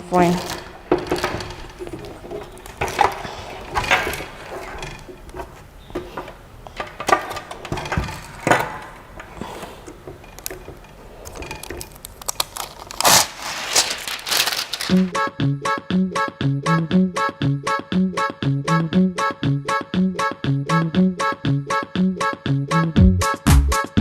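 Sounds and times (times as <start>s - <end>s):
parts knocking and clacking: 0.0s - 14.9s.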